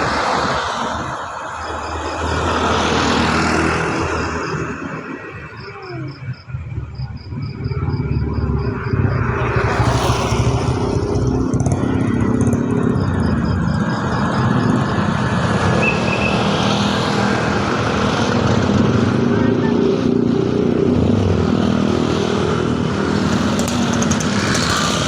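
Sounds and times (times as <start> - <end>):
car engines running: 0.0 - 25.0
motorcycle engine running: 6.9 - 25.0.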